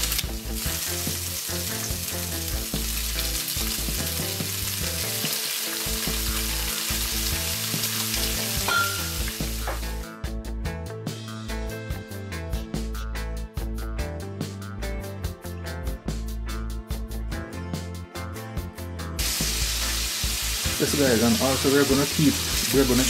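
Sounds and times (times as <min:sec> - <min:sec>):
shrimp sizzling in hot oil: 0:00.0 - 0:10.0, 0:19.2 - 0:23.0
music with a beat: 0:00.0 - 0:20.6.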